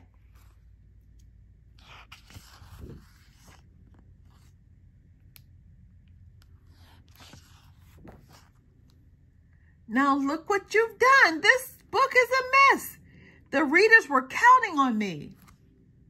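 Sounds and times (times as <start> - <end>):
paper rustling: 0.0 - 4.6, 6.6 - 8.7.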